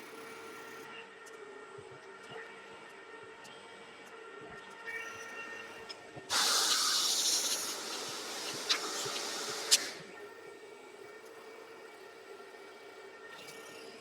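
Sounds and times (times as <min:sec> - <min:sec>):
loud hiss: 0:06.3 - 0:10.1
milling machine humming: 0:06.3 - 0:10.2.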